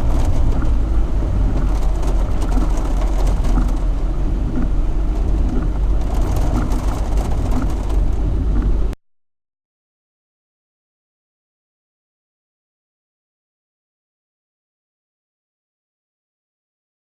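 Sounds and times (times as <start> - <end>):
sharp rattles and ticks: 0.0 - 0.8, 1.5 - 8.8
engine rumble: 0.0 - 9.0.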